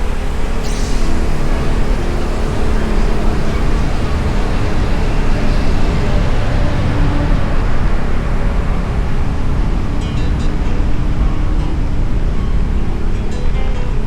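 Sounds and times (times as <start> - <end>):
brief high hiss: 0.0 - 6.5
wind rushing over microphone: 0.0 - 14.0.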